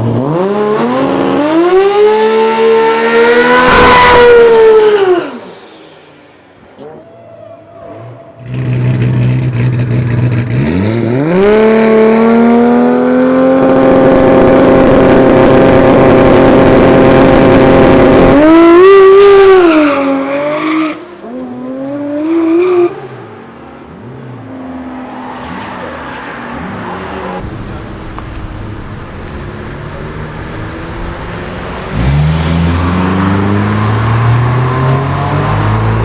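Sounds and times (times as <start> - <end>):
car engine revving: 0.0 - 6.2, 8.4 - 36.0.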